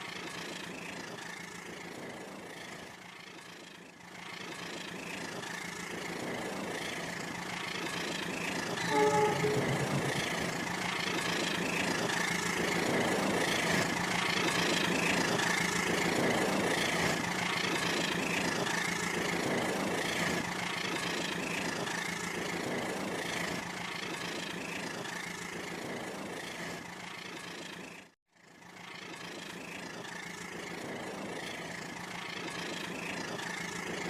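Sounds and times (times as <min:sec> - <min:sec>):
toy train motor whine: 0:04.3 - 0:28.0.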